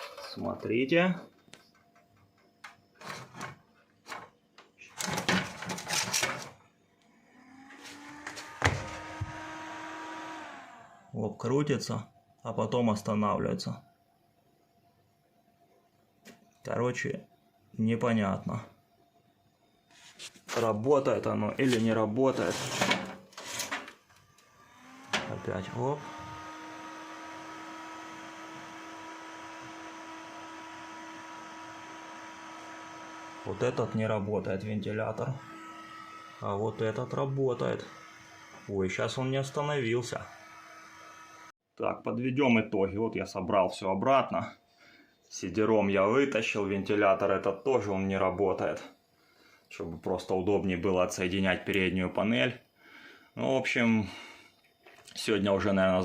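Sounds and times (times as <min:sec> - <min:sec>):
computer fans whirring: 0:05.0 - 0:11.2, 0:24.6 - 0:41.5.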